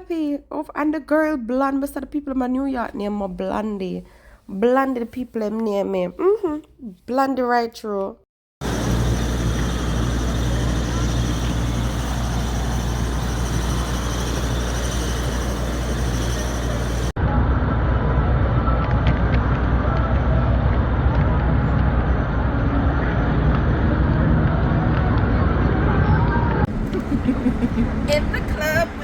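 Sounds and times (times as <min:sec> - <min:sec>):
traffic rumble: 0:08.6 - 0:17.2, 0:26.7 - 0:29.0
hum of the street: 0:08.6 - 0:29.0.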